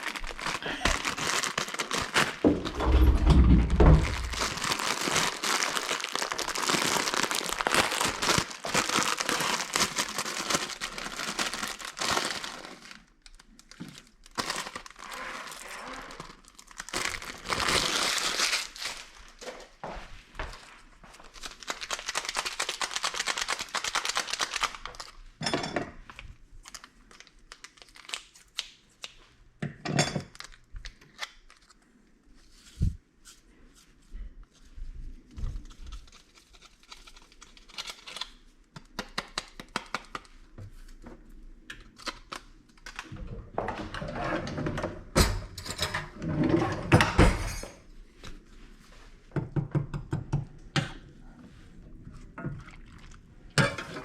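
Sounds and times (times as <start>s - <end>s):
packaging crinkling and tearing: 0.0s - 19.5s, 21.2s - 25.2s, 26.6s - 29.2s, 30.3s - 31.8s, 35.5s - 41.0s, 41.8s - 43.1s
objects knocking and thudding: 2.4s - 4.7s.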